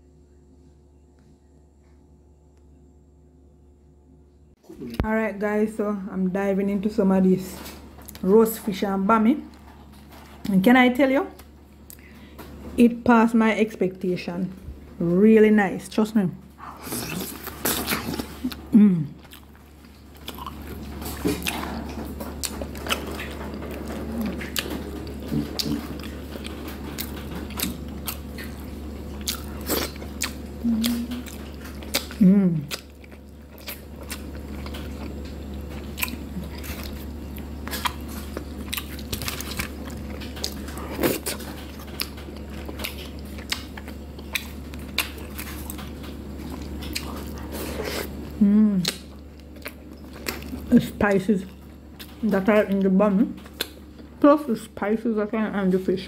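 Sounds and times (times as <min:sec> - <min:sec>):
steady low hum: 0:00.0 - 0:56.0
person chewing: 0:16.6 - 0:50.7, 0:53.4 - 0:54.2
person humming: 0:30.6 - 0:31.2, 0:32.2 - 0:32.7, 0:48.4 - 0:49.0.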